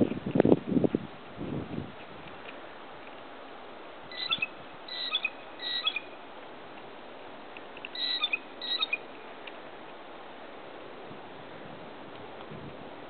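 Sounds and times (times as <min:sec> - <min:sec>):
bird chirping: 0:04.1 - 0:06.2, 0:07.9 - 0:09.1.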